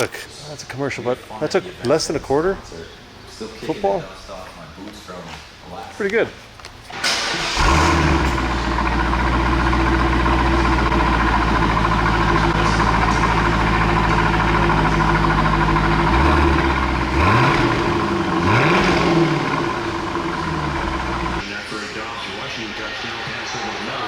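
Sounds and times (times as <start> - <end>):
car engine starting and idling: 6.9 - 21.4
engine throttle revs: 7.1 - 21.4.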